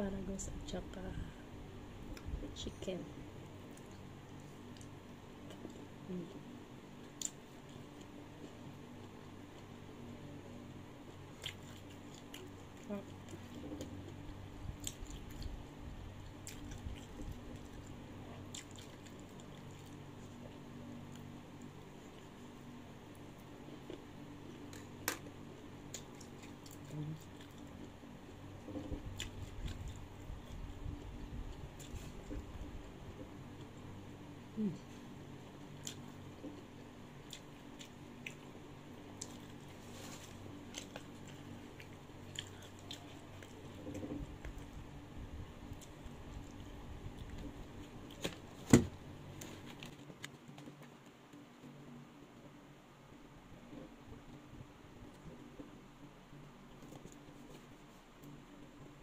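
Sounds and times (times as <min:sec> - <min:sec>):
person chewing food: 0:03.6 - 0:09.7, 0:11.0 - 0:33.7, 0:34.8 - 0:48.6.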